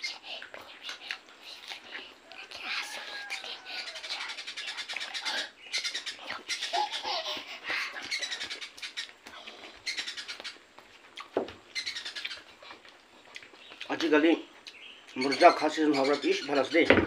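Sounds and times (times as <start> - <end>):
wet chewing and lip smacking: 0.0 - 5.4, 7.9 - 15.2.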